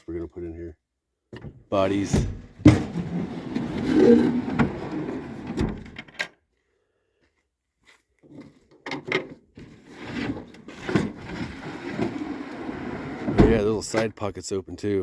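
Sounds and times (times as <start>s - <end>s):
wooden drawers knocking and clicking: 1.4s - 6.3s, 13.2s - 13.7s.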